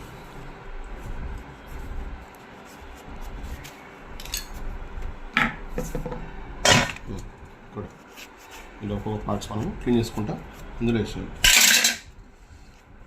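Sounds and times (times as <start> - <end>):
light metal clinks and knocks: 4.2 - 4.6
metal parts being rubbed: 11.4 - 12.0.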